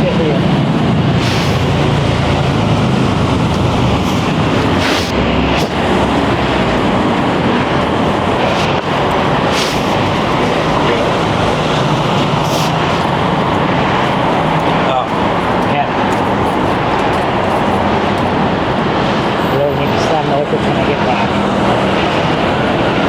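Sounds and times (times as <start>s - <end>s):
heavy traffic rumble and hiss: 0.0s - 23.0s.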